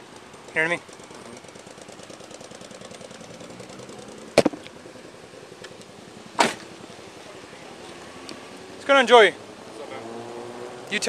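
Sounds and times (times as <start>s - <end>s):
car engine idling with ticking: 0.0s - 7.9s
sharp knocks: 4.3s - 4.6s.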